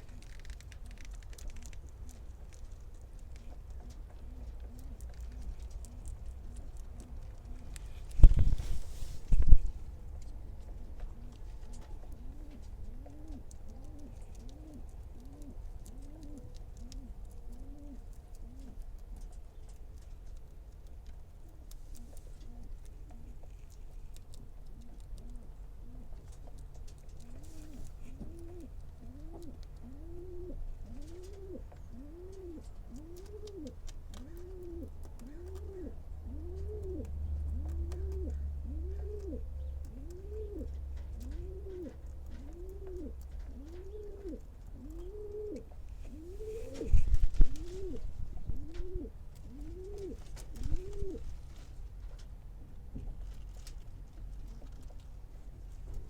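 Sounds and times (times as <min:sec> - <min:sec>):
rabbit crunching food: 0:00.0 - 0:56.0
low cooing call: 0:11.1 - 0:18.8, 0:27.2 - 0:51.3.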